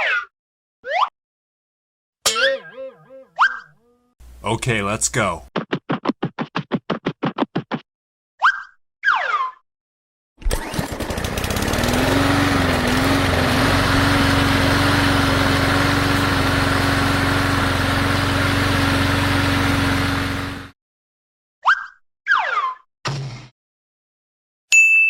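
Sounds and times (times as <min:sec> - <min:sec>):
motor engine running: 0:10.4 - 0:20.8.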